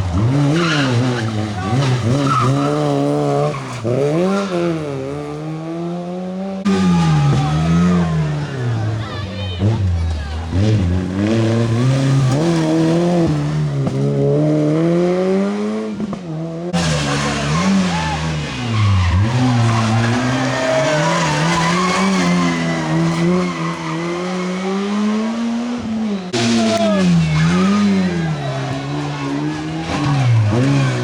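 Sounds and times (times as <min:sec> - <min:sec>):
tyre squeal and skidding: 0:00.0 - 0:05.1, 0:16.8 - 0:31.0
rally car engines revving: 0:00.0 - 0:31.0.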